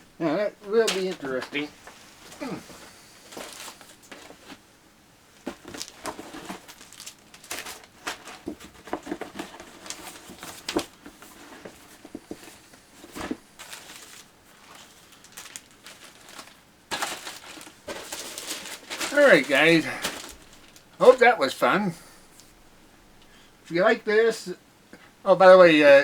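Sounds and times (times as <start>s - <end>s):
packaging crinkling and rustling: 0.7s - 4.7s, 5.3s - 21.6s.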